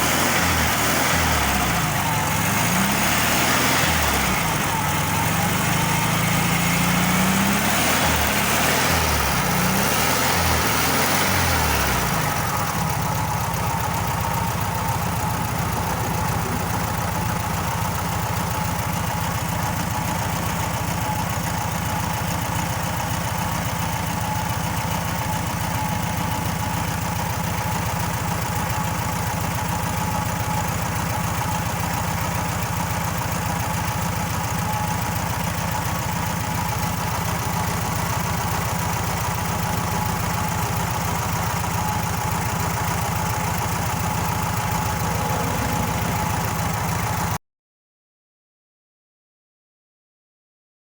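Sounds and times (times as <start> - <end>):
car engine revving and idling: 0.0 - 28.5, 35.9 - 47.4.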